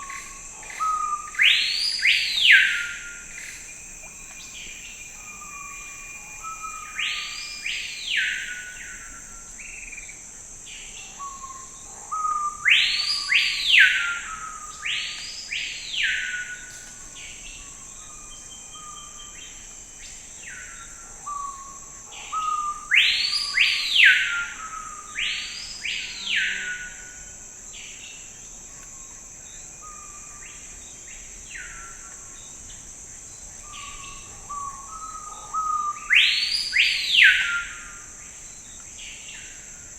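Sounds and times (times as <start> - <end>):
songbird whistling song: 33.6 - 38.0.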